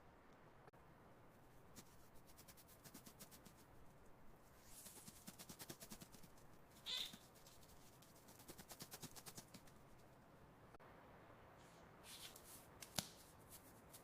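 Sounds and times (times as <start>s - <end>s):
high-pitched squeak: 6.9s - 7.2s.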